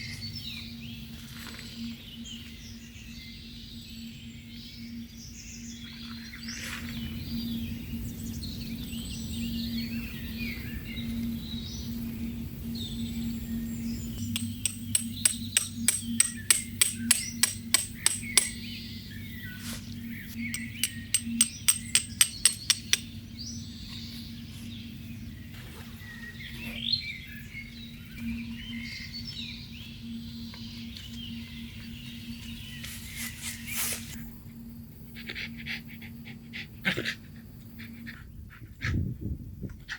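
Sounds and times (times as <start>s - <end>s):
birds chirping: 0.0s - 34.2s
steady low hum: 0.0s - 39.9s
ringing hammer strikes: 14.2s - 18.8s, 20.4s - 23.2s.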